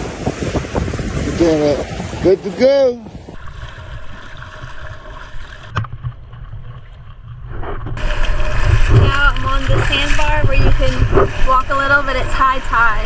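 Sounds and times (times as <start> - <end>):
wind rumble on microphone: 0.0 - 4.2, 6.0 - 13.0
boat motor running: 3.4 - 13.0.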